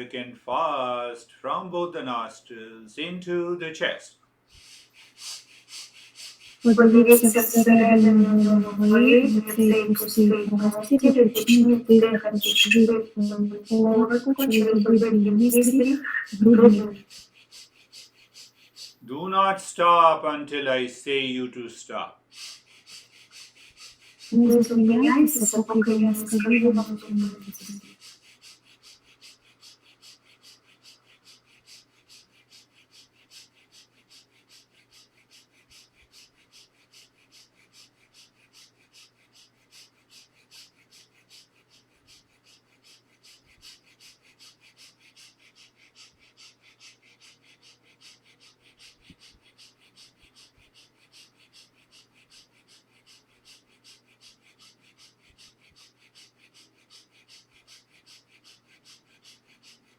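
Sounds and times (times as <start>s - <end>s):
fast forceful nose breaths: 4.5s - 10.3s, 17.0s - 19.1s, 22.3s - 24.4s, 27.8s - 59.9s.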